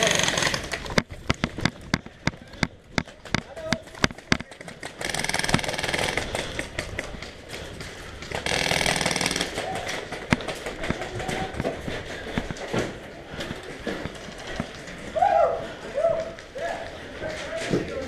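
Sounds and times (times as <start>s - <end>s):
airsoft rifle firing full-auto: 0.0s - 0.7s, 4.9s - 6.5s, 8.4s - 9.7s
scattered knocks: 0.0s - 7.2s.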